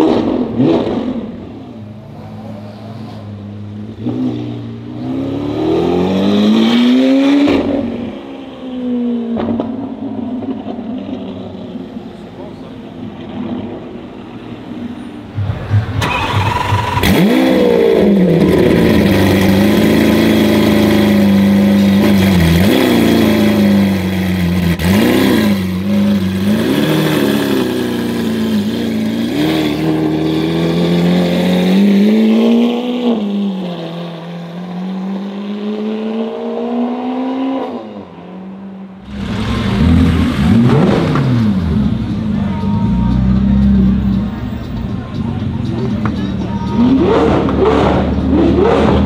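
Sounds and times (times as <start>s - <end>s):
another car engine revving: 0.0s - 8.2s, 15.3s - 44.7s, 45.8s - 49.0s
sports car engine revving: 15.3s - 44.7s, 45.7s - 49.0s.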